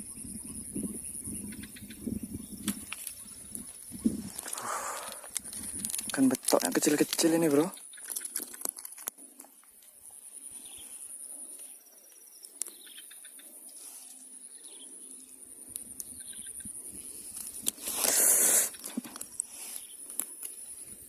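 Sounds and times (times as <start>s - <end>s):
birds chirping: 0.0s - 8.6s, 9.2s - 17.2s.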